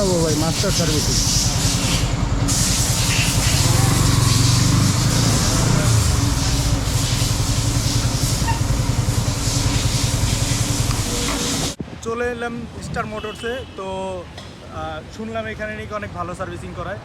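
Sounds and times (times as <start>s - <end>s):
motorcycle engine running: 0.0s - 11.8s
wind rushing over microphone: 11.7s - 13.2s.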